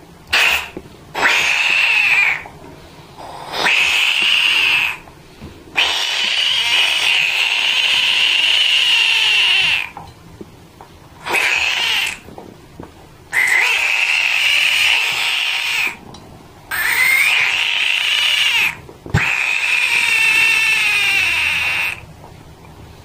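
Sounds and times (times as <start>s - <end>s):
frog screaming: 0.3s - 2.5s, 3.2s - 5.0s, 5.8s - 10.0s, 11.2s - 12.3s, 13.3s - 16.0s, 16.7s - 22.1s.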